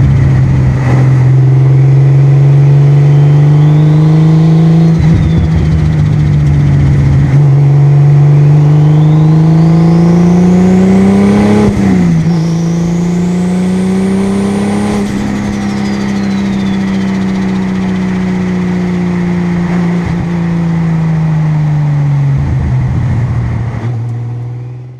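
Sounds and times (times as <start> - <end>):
car engine accelerating: 0.0 - 24.9
turbo whistle: 2.9 - 6.2, 8.7 - 10.2, 12.2 - 13.4, 14.4 - 18.5.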